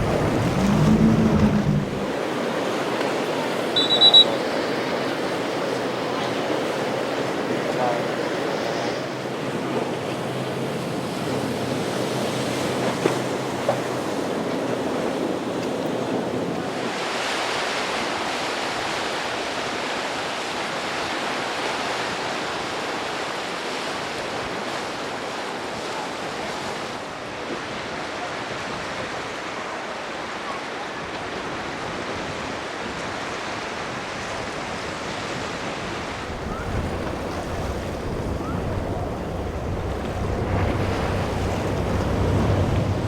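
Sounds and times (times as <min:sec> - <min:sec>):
low engine hum: 0:00.0 - 0:02.2, 0:36.3 - 0:43.0
wind on microphone: 0:00.0 - 0:02.2, 0:36.2 - 0:43.0
waves and rushing surf: 0:00.0 - 0:43.0.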